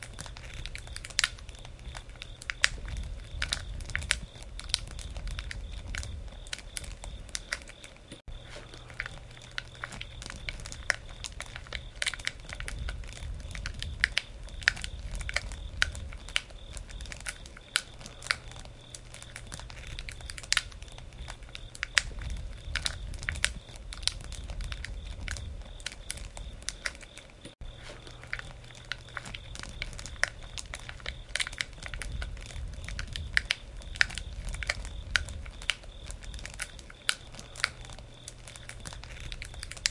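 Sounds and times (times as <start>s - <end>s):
campfire crackling and popping: 0.0s - 39.9s
low rumble: 27.6s - 36.6s.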